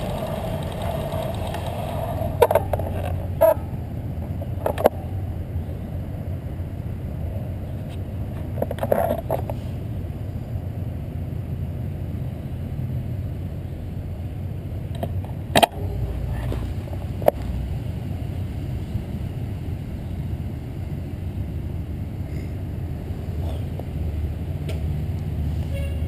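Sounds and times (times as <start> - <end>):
bicycle rattles: 0.0 - 3.6
road and wind noise: 0.0 - 26.0.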